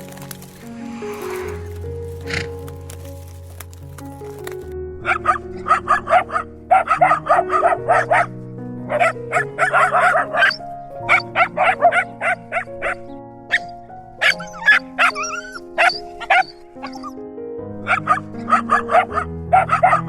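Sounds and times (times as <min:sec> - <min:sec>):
dog barking: 0:05.0 - 0:17.1, 0:17.8 - 0:20.0.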